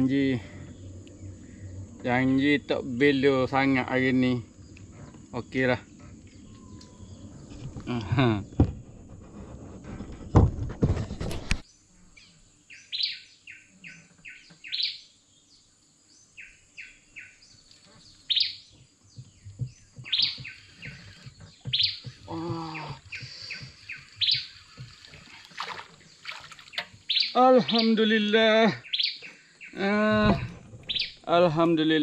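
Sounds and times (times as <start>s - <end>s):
birds chirping: 0.0s - 8.9s, 11.6s - 32.0s
lower bird call: 20.0s - 28.0s.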